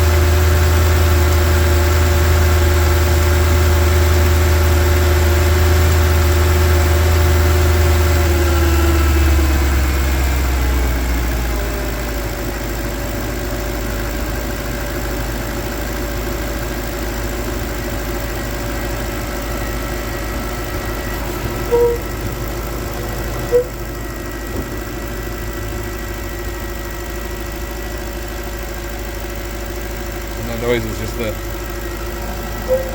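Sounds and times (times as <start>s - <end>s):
car engine idling: 0.0s - 32.9s
short squeaks: 21.5s - 22.4s, 23.4s - 23.9s, 32.4s - 32.9s.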